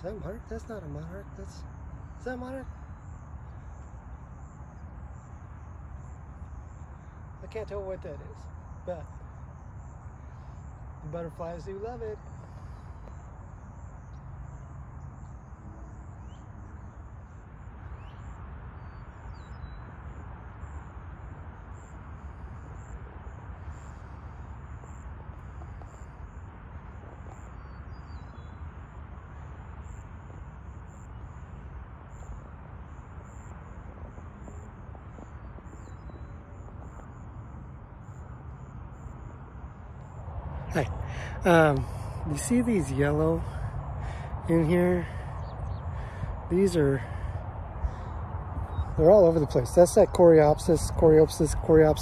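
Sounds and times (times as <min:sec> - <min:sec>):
bird chirps: 0:17.9 - 0:20.0, 0:27.3 - 0:28.6, 0:40.7 - 0:52.0
steady low rumble: 0:31.6 - 0:52.0
insect calling in high pulses: 0:32.1 - 0:52.0.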